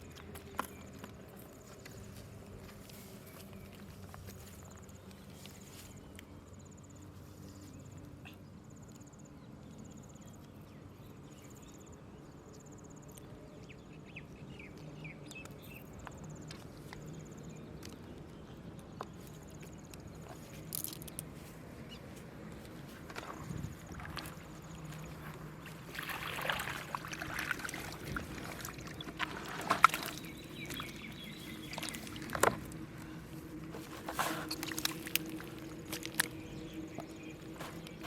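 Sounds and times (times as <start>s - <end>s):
low steady hum: 0.0s - 38.0s.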